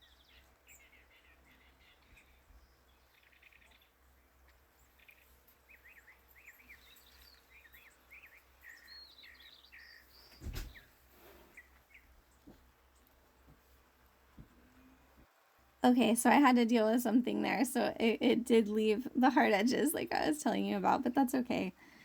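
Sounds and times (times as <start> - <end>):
quick bird chirps: 10.2 - 11.7.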